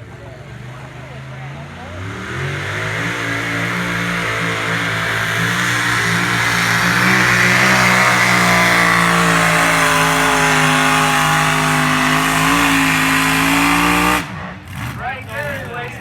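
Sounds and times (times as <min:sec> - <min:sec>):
engine at high revs: 0:00.0 - 0:16.0.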